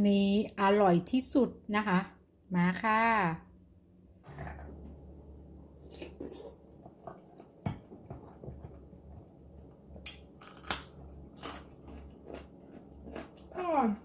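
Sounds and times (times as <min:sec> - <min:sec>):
crab shell cracking: 0:10.0 - 0:12.0
crab shell crunching: 0:10.0 - 0:14.0.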